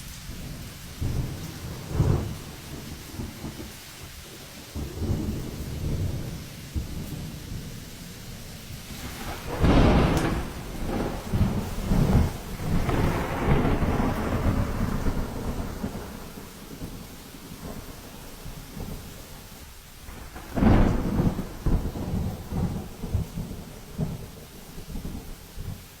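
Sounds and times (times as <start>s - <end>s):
rain: 0.0s - 26.0s
thunder rumbling: 0.0s - 26.0s
loud thunder claps: 0.3s - 3.7s, 8.8s - 19.2s, 20.1s - 25.8s.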